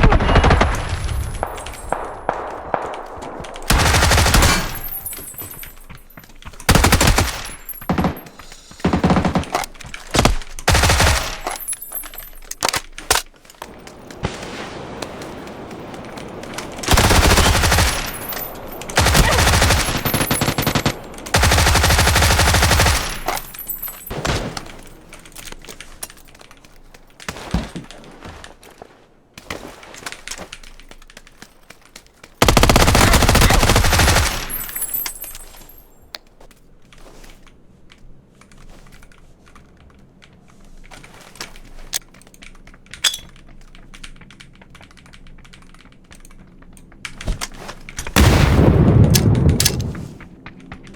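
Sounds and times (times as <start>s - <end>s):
automatic gunfire bursts: 19.0s - 23.3s, 32.4s - 34.6s.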